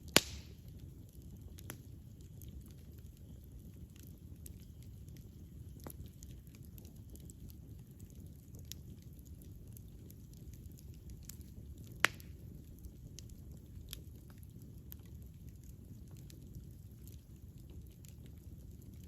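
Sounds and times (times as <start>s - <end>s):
campfire flame rumble: 0.0s - 19.0s
small fire crackles: 0.0s - 19.0s.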